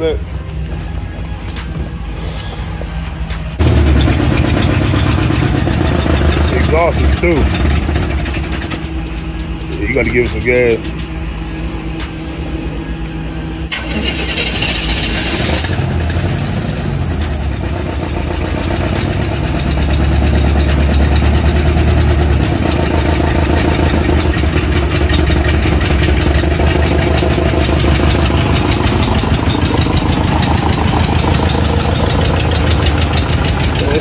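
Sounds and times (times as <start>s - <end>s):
car engine starting and revving: 3.6s - 34.0s
high squeal: 13.8s - 18.6s.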